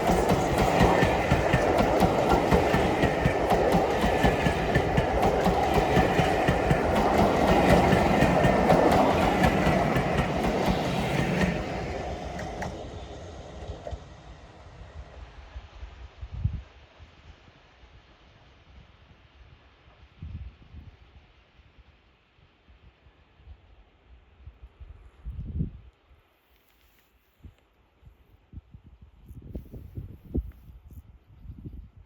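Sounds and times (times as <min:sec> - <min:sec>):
railway carriages rattling over rails: 0:00.0 - 0:14.4.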